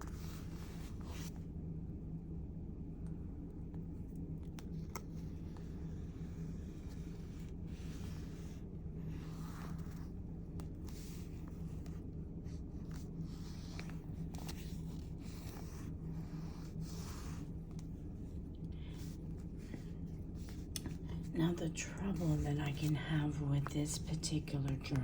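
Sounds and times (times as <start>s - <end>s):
steady low hum: 0.0s - 25.0s
scraping strokes on paper: 5.2s - 21.2s.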